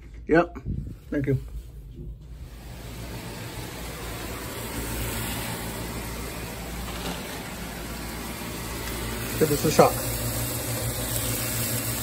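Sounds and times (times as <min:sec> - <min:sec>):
meat frying in a wok: 0:02.6 - 0:12.0.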